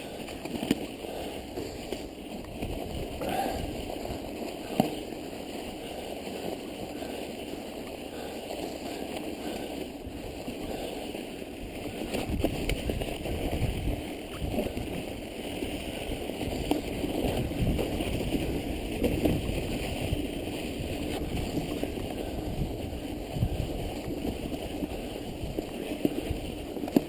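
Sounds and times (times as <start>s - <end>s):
bike riding through snow: 0.0s - 27.0s
wind buffeting microphone: 12.0s - 15.3s, 16.0s - 27.0s.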